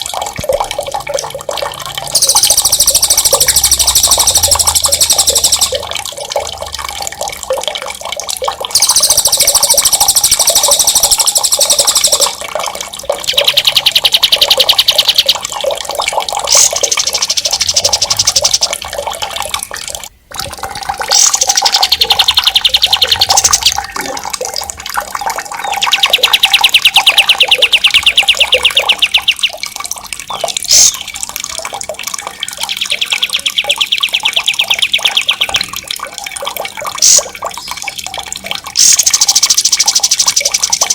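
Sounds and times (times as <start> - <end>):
running water: 0.0 - 40.9
songbird trilling: 2.1 - 5.8, 8.8 - 12.4, 13.2 - 15.4, 16.5 - 18.8, 21.1 - 24.2, 25.6 - 29.6, 32.4 - 35.7.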